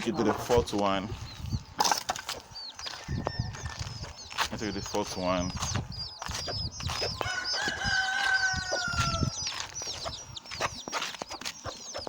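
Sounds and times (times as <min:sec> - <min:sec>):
chickens clucking: 0:00.0 - 0:12.0
rooster crowing: 0:07.2 - 0:09.4.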